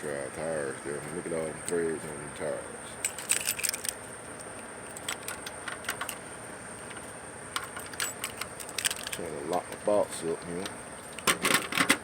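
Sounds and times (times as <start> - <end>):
steady background noise: 0.0 - 12.0
keys jangling: 3.1 - 4.0.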